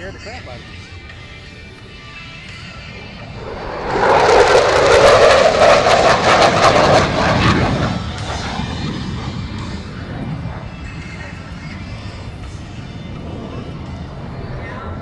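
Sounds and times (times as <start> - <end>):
jet fighter engine roar: 2.7 - 15.0.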